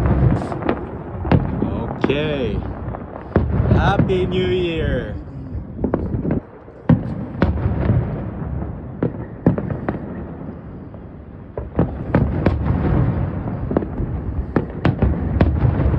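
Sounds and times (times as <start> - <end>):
low rolling rumble: 0.0 - 8.8
fireworks bangs: 0.0 - 15.9.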